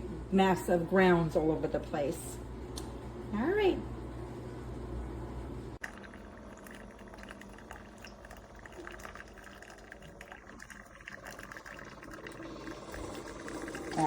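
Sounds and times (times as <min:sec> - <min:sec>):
coffee maker sputtering and gurgling: 0:05.7 - 0:14.0.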